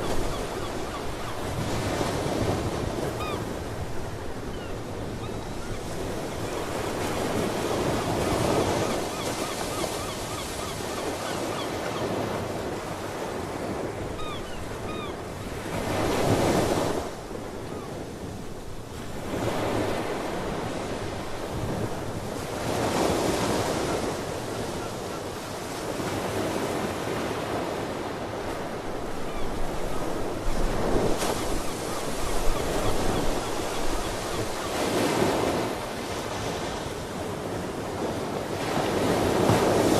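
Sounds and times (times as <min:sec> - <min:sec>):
seabirds calling: 0:00.0 - 0:03.6, 0:04.4 - 0:12.9, 0:13.5 - 0:16.6, 0:29.1 - 0:35.6.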